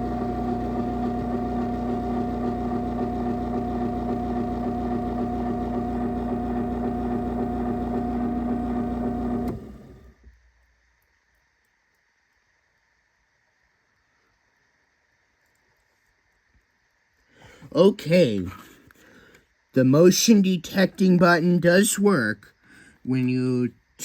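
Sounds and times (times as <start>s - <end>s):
garage door opener motor hum: 0.0s - 10.2s.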